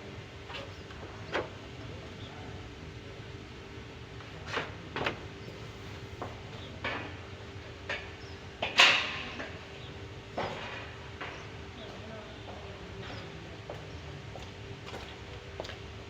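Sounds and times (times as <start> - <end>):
knocks and clanks of hard objects: 10.4 - 11.4.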